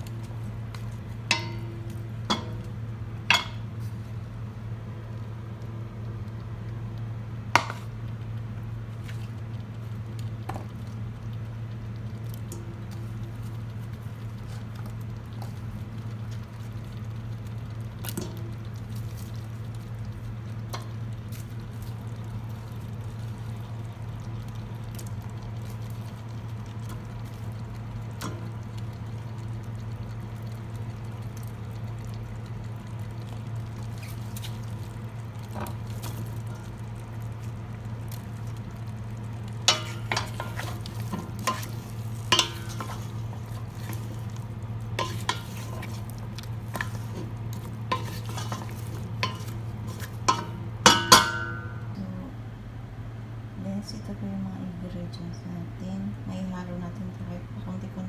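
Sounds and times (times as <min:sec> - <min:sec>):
steady low hum: 0:00.0 - 0:58.0
kitchenware clattering: 0:03.3 - 0:03.6, 0:39.7 - 0:41.8, 0:42.4 - 0:44.1, 0:47.9 - 0:51.9.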